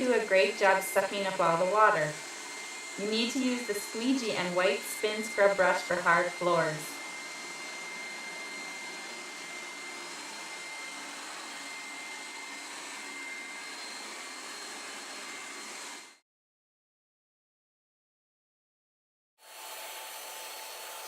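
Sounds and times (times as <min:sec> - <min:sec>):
carpet cleaner motor running: 0:00.0 - 0:16.2.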